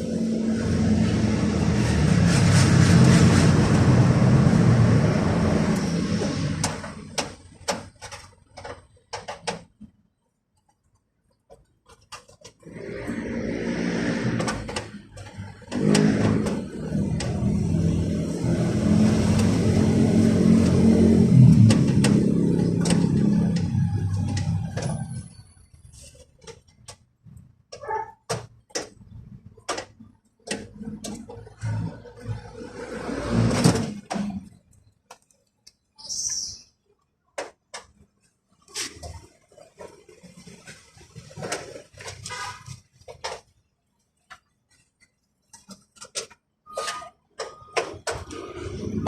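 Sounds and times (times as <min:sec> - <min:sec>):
scraping and rubbing on car door: 0:11.8 - 0:27.0, 0:38.7 - 0:43.7.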